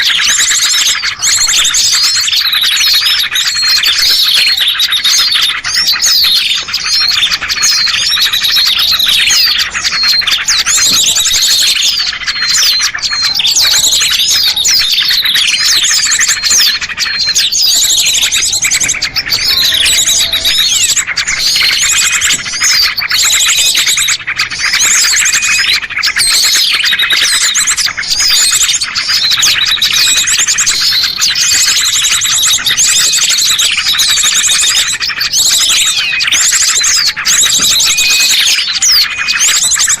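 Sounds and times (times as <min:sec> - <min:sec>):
songbirds chirping and trilling: 0:00.0 - 0:40.0.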